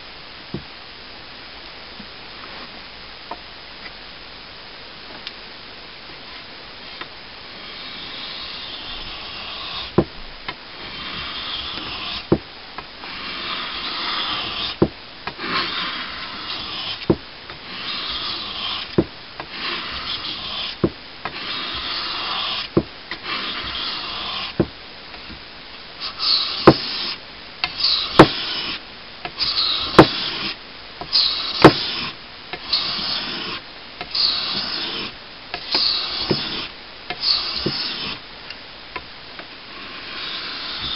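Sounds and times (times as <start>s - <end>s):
blade scraping on whetstone: 7.6s - 10.0s, 10.8s - 12.4s, 13.0s - 24.6s, 26.0s - 38.2s, 39.7s - 40.9s.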